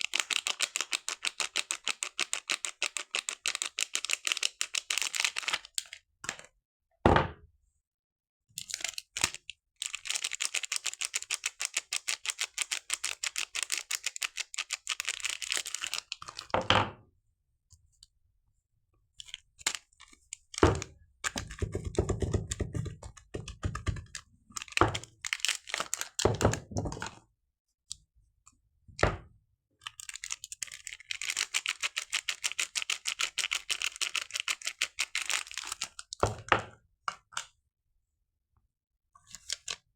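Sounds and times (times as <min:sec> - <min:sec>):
packaging crinkling: 0:24.6 - 0:26.2, 0:30.0 - 0:36.0.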